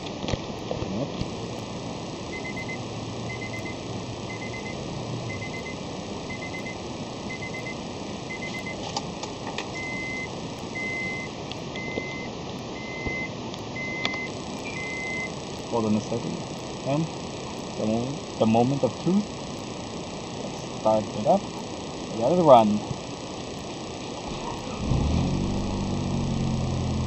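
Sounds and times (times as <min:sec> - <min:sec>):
steady background hiss: 0:00.0 - 0:27.0
electronic warning beeps: 0:01.6 - 0:08.8, 0:09.8 - 0:19.8.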